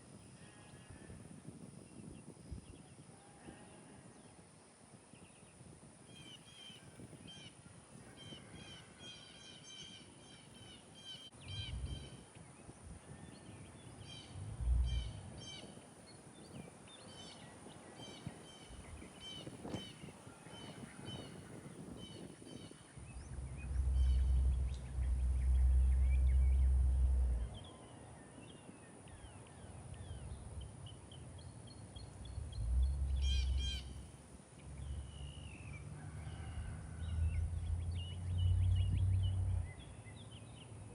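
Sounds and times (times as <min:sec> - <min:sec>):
birds chirping: 0:09.2 - 0:35.8, 0:37.2 - 0:40.8
low rumble: 0:11.4 - 0:12.3, 0:14.0 - 0:15.7, 0:22.5 - 0:28.3, 0:29.1 - 0:40.3.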